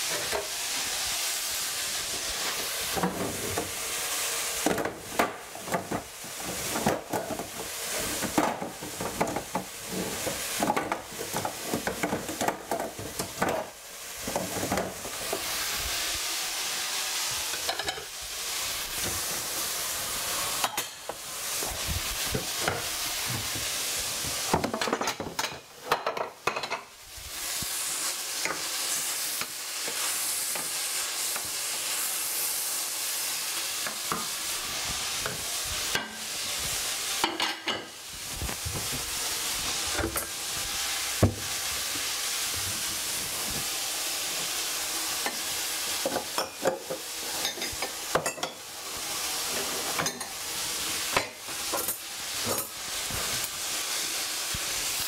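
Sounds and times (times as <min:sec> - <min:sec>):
wooden spoon scraping a pan: 0:00.0 - 0:16.0
vegetables sizzling in a frying pan: 0:00.0 - 0:55.0.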